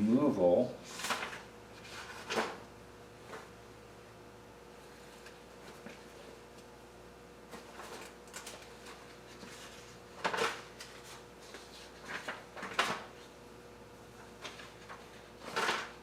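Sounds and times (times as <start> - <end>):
paper pages flipping: 0.9 - 2.6, 7.5 - 13.3.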